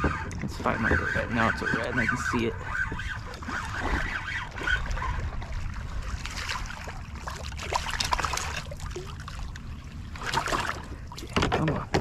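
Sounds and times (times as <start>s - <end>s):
wind on microphone: 0.0s - 7.0s
water splashing beside kayak: 0.0s - 12.0s.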